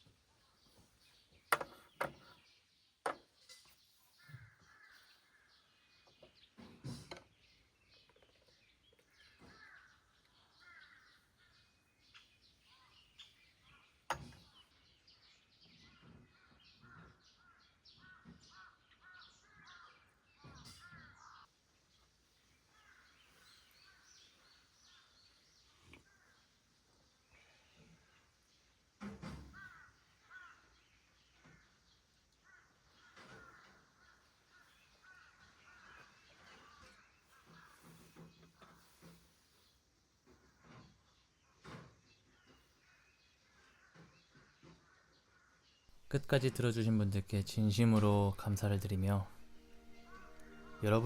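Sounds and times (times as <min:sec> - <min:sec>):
crows cawing faintly: 0:04.0 - 0:06.8, 0:08.9 - 0:12.9, 0:15.8 - 0:21.6, 0:22.5 - 0:39.4, 0:42.0 - 0:45.9, 0:48.3 - 0:51.0.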